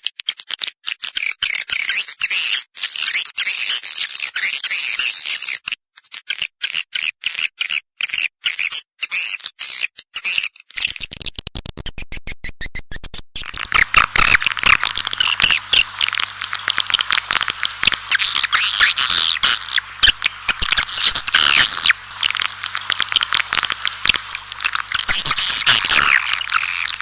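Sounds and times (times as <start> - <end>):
recorded swiftlet chirps: 10.8 - 27.0
faint low hum: 13.1 - 27.0.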